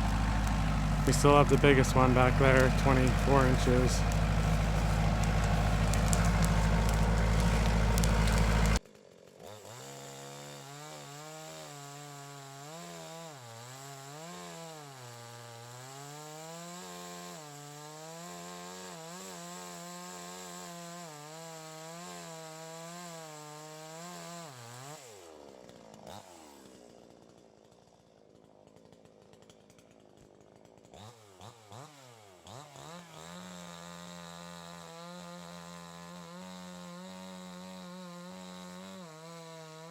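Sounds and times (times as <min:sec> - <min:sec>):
loud dense rumble: 0:00.0 - 0:08.8
chainsaw cutting and revving: 0:00.0 - 0:39.9.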